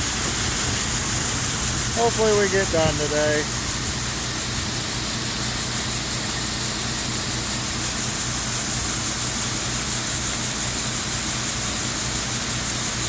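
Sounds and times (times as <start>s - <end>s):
heavy machinery engine droning: 0.0s - 3.6s
high hiss: 0.0s - 12.0s.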